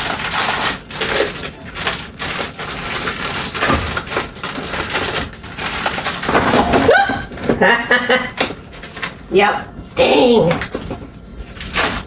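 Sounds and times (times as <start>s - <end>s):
snack packaging rustling: 0.0s - 6.6s, 10.6s - 12.0s.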